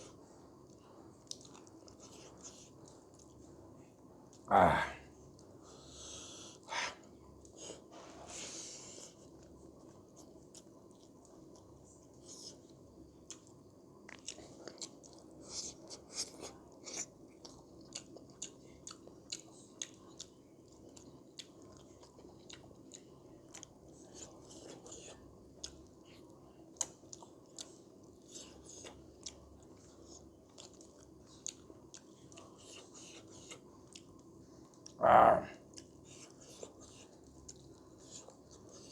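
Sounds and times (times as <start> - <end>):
chewing with wet mouth smacks: 0.0 - 4.5, 8.9 - 38.9
steady low hum: 23.8 - 37.2.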